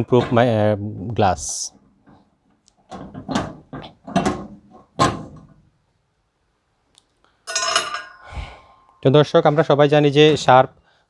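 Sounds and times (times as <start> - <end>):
microwave oven knocks and clunks: 2.9 - 5.6.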